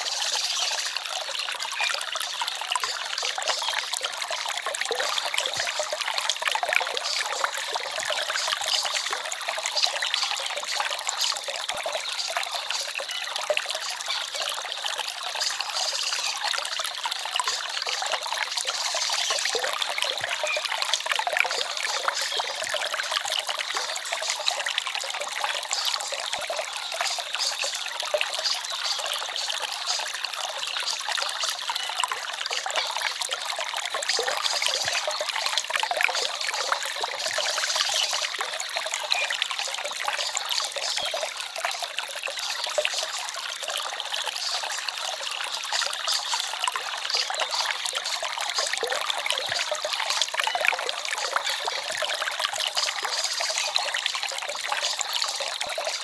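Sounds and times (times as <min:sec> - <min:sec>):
stream babbling over stones: 0:00.0 - 0:56.0.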